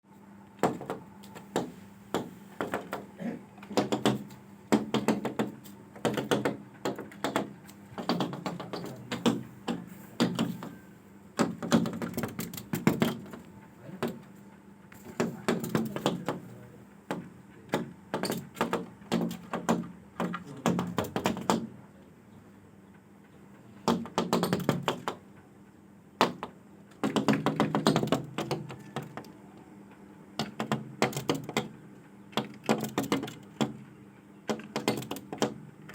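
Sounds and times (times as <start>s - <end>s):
rapid tapping on hard surface: 3.7s - 10.7s, 17.1s - 21.7s.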